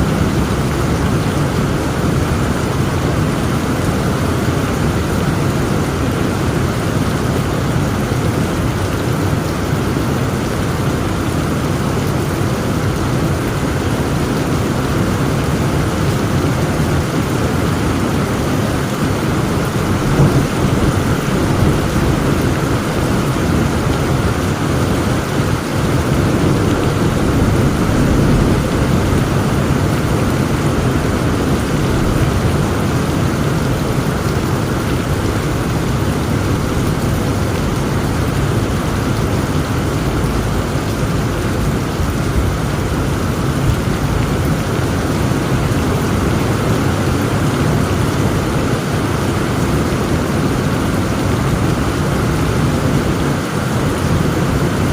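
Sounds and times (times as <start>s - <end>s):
heavy rain pouring: 0.0s - 54.9s
low thunder rumble: 14.8s - 46.0s.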